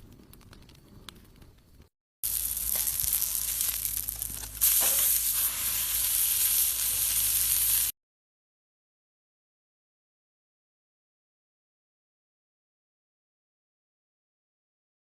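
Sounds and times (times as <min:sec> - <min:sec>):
food sizzling in a pan: 0:02.2 - 0:08.0.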